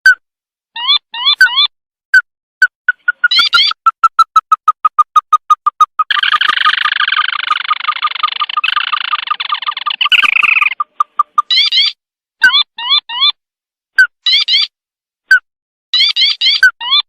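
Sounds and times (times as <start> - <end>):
bird calls: 2.9 - 13.4.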